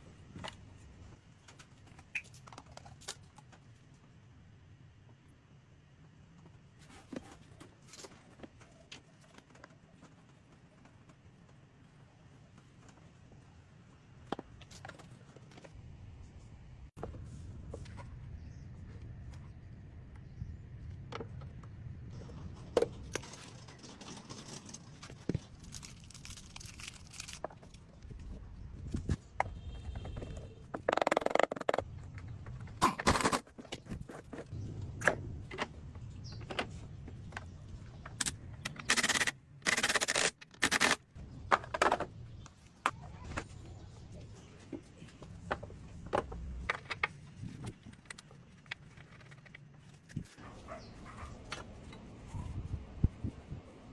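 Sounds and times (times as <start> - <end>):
tools clicking and scraping metal: 22.2 - 28.0, 38.0 - 41.0.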